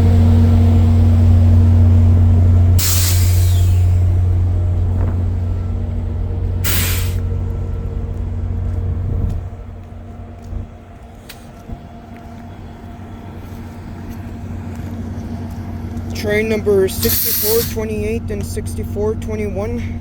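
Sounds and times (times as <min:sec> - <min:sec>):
diesel locomotive rumbling: 0:00.0 - 0:20.0
air brake hiss: 0:02.8 - 0:04.1, 0:06.6 - 0:07.2, 0:17.0 - 0:17.8.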